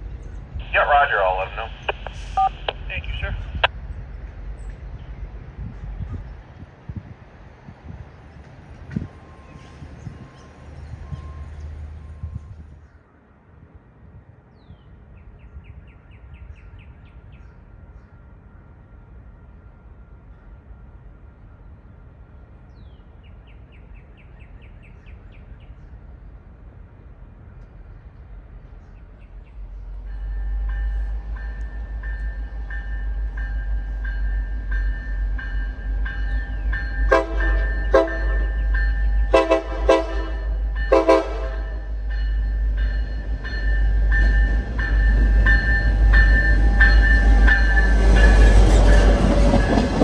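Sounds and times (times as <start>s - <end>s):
diesel locomotives rumbling: 0.0s - 50.0s
songbird singing: 14.5s - 18.3s, 21.4s - 39.6s.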